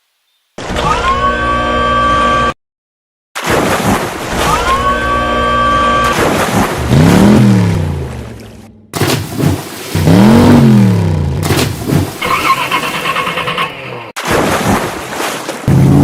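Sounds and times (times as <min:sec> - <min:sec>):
engine revving: 0:06.8 - 0:08.8, 0:10.0 - 0:11.6.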